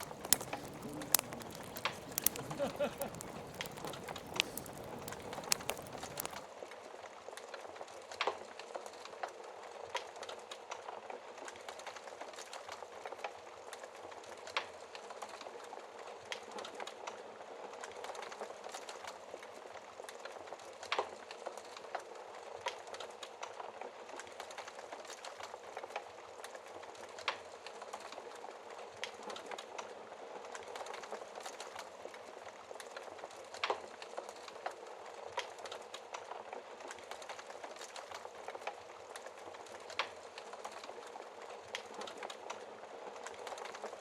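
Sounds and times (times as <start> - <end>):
rain hissing: 0.0 - 6.4
log fire crackling: 0.0 - 6.5, 16.6 - 44.0.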